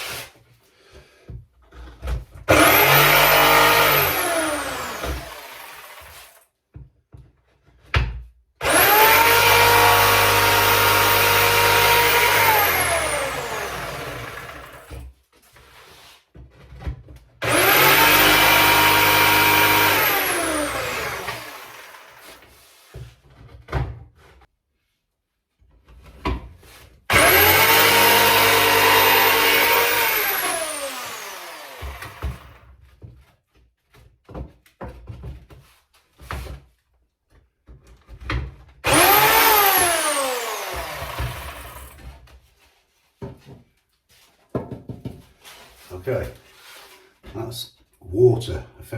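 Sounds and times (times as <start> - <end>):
electric power saw cutting wood: 2.5 - 6.4, 8.6 - 15.0, 17.4 - 22.5, 27.1 - 32.6, 38.8 - 42.1.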